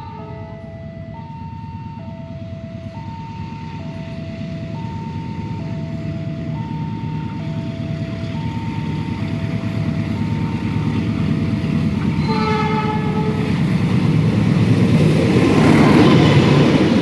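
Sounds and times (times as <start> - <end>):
train horn: 0.0 - 1.2, 12.0 - 13.8
train rumble: 0.0 - 17.0.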